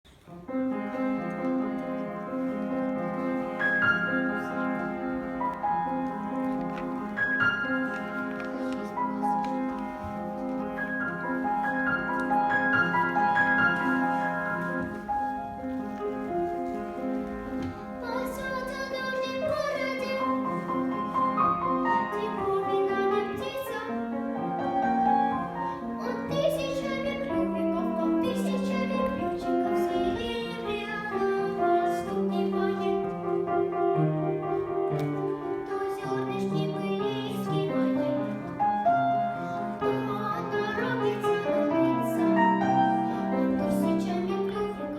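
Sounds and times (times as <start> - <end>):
piano accompaniment: 0.1 - 44.9
girl singing: 17.4 - 33.5, 35.4 - 44.9.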